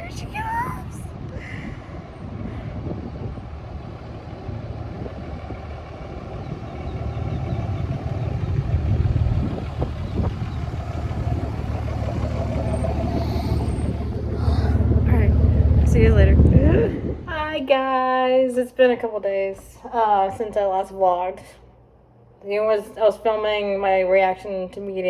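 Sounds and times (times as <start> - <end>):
motor vehicle rumbling: 0.0 - 18.2.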